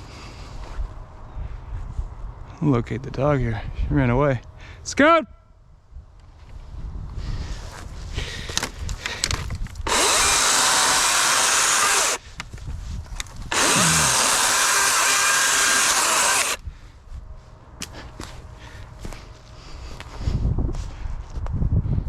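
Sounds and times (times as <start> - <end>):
battery chainsaw running: 8.6 - 12.2, 13.5 - 16.6.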